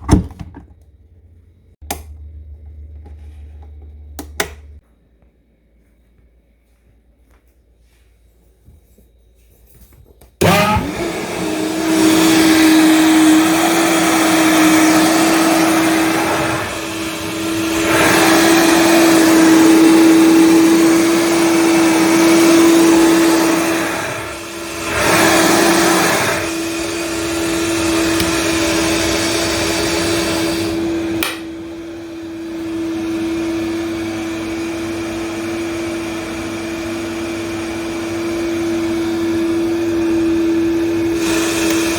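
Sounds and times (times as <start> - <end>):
blender switch click: 4.2 - 4.7, 28.2 - 28.4, 31.2 - 31.5
blender running at high speed: 10.4 - 41.9.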